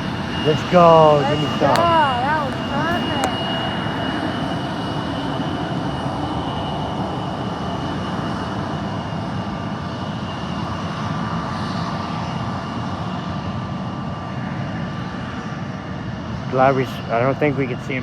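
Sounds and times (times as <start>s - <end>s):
jet engines idling: 0.0s - 5.7s.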